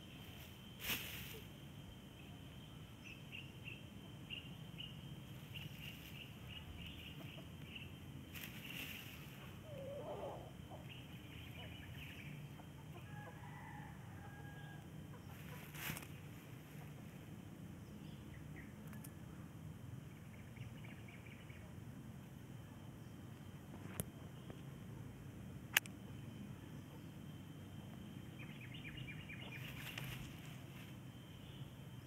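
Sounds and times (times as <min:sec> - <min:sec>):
low outdoor hum: 0:00.0 - 0:32.0
rustling: 0:00.2 - 0:01.6, 0:08.3 - 0:09.6, 0:15.3 - 0:16.3, 0:29.6 - 0:31.0
faint bird calls: 0:02.2 - 0:17.1.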